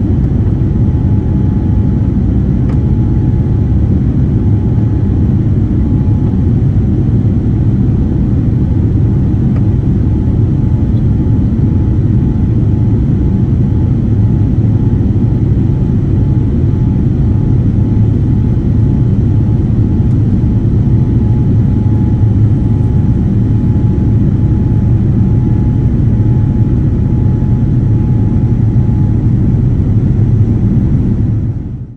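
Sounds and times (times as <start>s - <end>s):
airliner cabin engine rumble: 0.0s - 31.9s.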